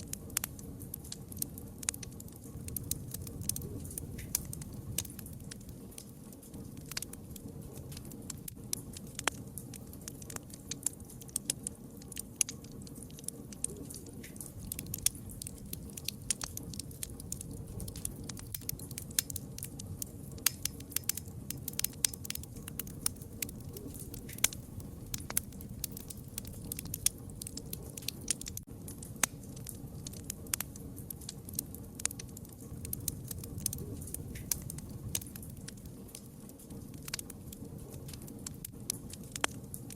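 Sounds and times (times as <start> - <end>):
campfire crackling and popping: 0.0 - 39.9
low rumble of fire: 0.0 - 39.9.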